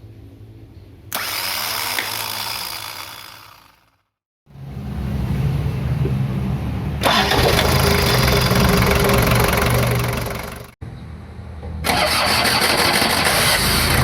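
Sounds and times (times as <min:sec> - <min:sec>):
engine starter mechanical noise: 0:01.1 - 0:03.8, 0:07.0 - 0:10.8, 0:11.8 - 0:14.0.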